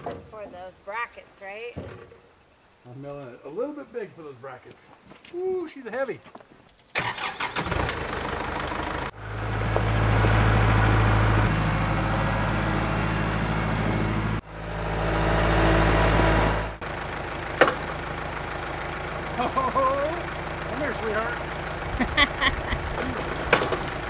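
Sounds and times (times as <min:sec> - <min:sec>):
engine idling: 0:06.9 - 0:24.0.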